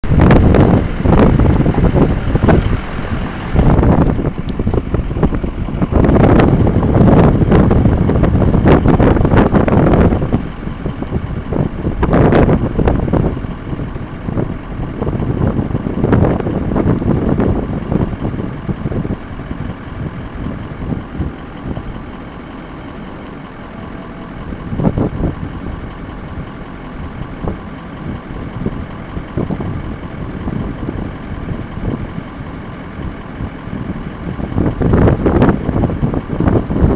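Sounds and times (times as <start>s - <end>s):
vehicle engine running: 0.0s - 36.9s
wind buffeting microphone: 0.0s - 36.9s.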